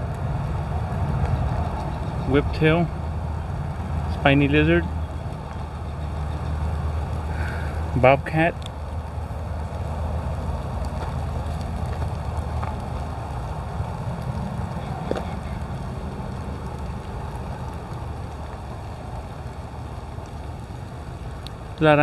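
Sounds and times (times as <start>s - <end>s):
wind buffeting microphone: 0.0s - 22.0s
faint ticks: 5.0s - 22.0s.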